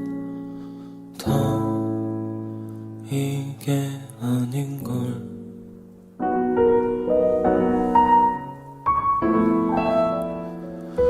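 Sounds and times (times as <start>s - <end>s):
soft piano chords: 0.0s - 11.0s.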